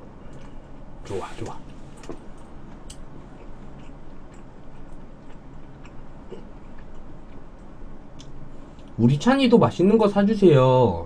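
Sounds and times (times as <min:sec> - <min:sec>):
low steady hum: 0:00.0 - 0:11.0
person chewing food: 0:02.7 - 0:08.9.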